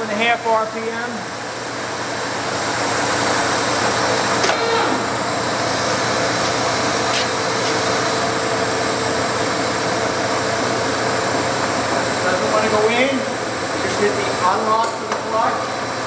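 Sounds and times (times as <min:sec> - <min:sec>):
lathe motor humming: 0:05.0 - 0:16.0.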